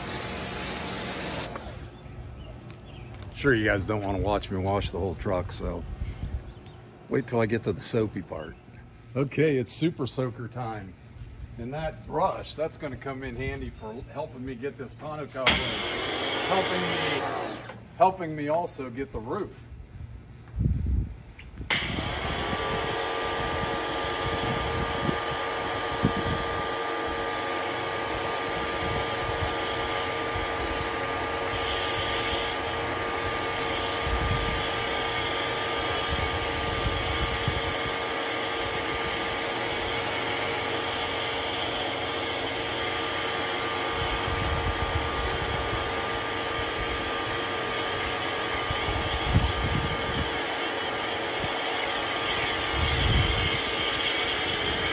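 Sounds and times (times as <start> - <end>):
water spraying hiss: 0.0 - 1.9
pressure washer motor whine: 0.0 - 6.2, 15.4 - 18.5, 21.7 - 54.9.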